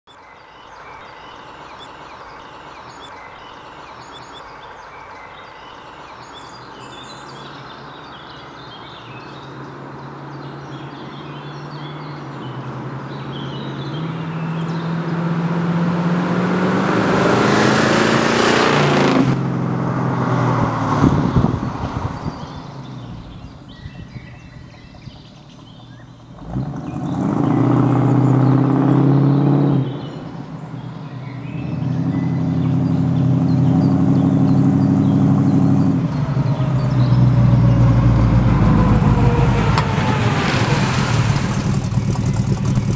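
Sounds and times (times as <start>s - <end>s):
car engine driving by: 9.3s - 42.9s.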